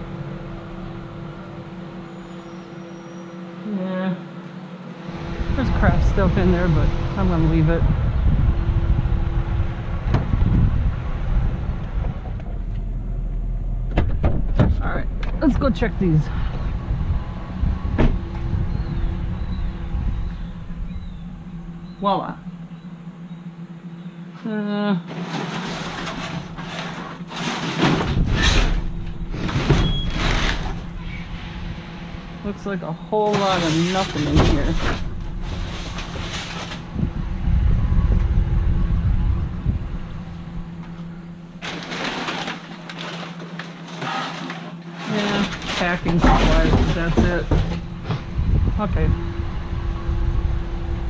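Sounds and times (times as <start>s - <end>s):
steady low hum: 0.0s - 51.0s
truck engine rumble from cab: 0.0s - 51.0s
trash rustling in a dumpster: 25.0s - 49.8s.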